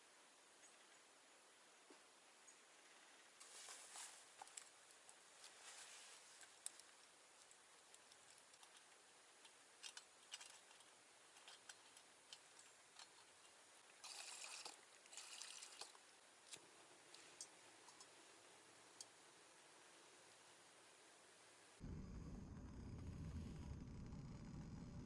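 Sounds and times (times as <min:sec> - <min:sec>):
faint clicks and ticks: 0:15.8 - 0:18.2, 0:21.8 - 0:25.0.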